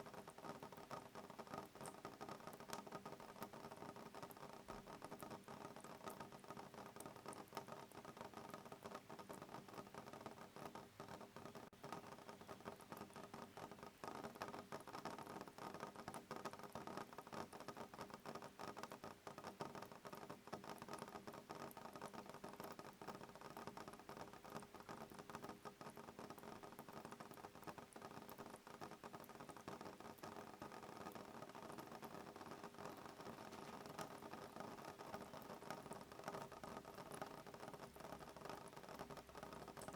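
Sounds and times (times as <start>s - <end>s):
rain pattering on a window: 0.0s - 39.9s.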